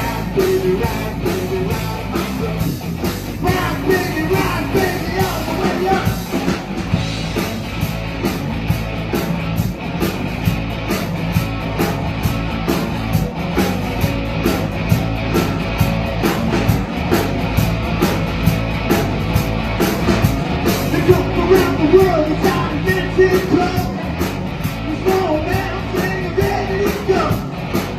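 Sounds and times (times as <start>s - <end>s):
drum kit beat: 0.0s - 27.9s
guitar: 0.0s - 27.9s.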